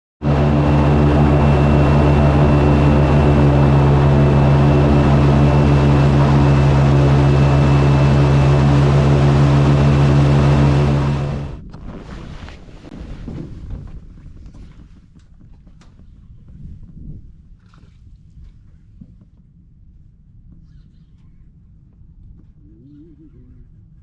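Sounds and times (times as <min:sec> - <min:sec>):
boat motor running: 0:00.2 - 0:12.0.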